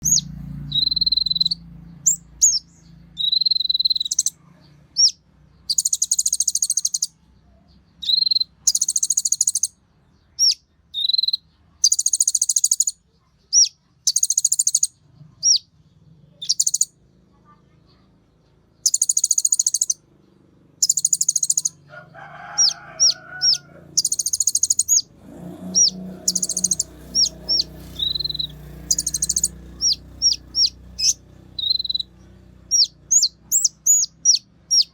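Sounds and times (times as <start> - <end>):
sharp bird chips: 0.0 - 4.4, 5.0 - 7.2, 8.0 - 15.7, 16.3 - 17.0, 18.6 - 20.1, 20.8 - 34.9
songbird buzzy trills: 0.0 - 18.0, 18.6 - 34.9.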